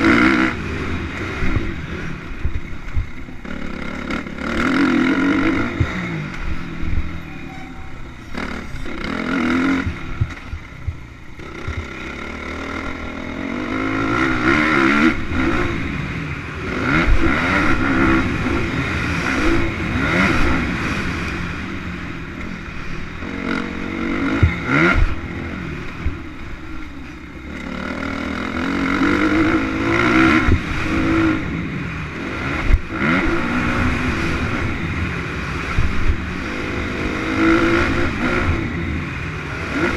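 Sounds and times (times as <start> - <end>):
motocross bike engines revving: 0.0 - 39.9.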